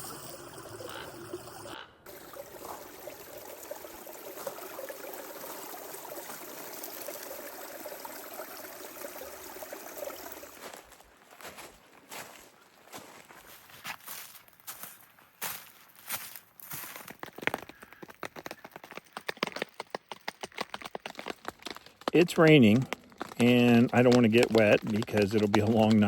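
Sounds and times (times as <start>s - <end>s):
creek trickling: 0.0s - 12.2s.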